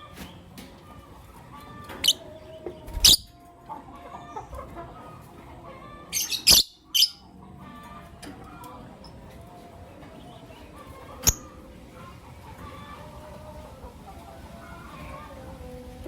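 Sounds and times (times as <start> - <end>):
birds chirping: 0.0 - 3.4, 4.2 - 13.2.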